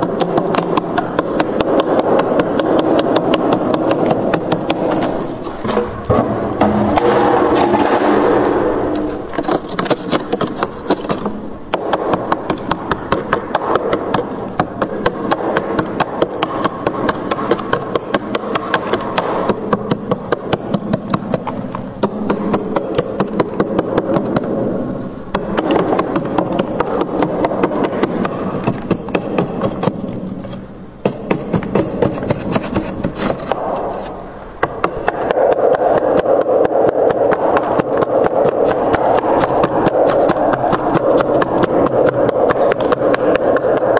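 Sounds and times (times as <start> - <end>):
steady low hum: 0.0 - 43.9
frost being scraped: 31.4 - 34.4.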